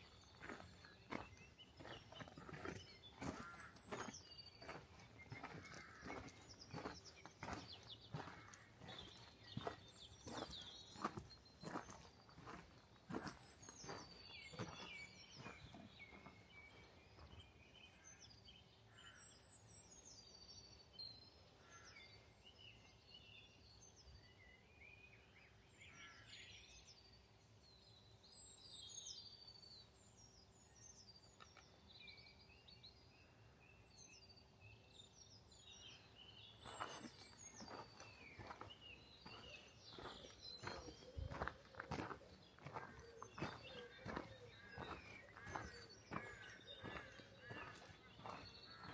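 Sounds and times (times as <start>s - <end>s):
small birds chirping: 0.0s - 24.6s, 28.2s - 48.9s
footsteps: 0.4s - 16.4s, 36.6s - 48.9s.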